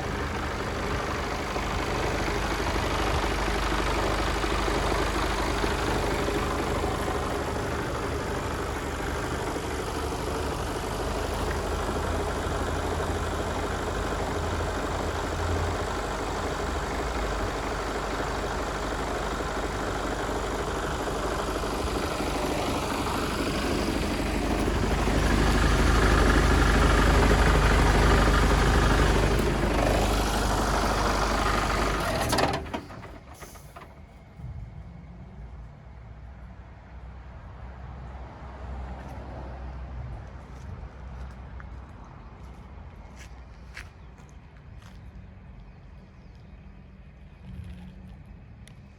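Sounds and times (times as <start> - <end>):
diesel truck engine idling: 0.0 - 34.7.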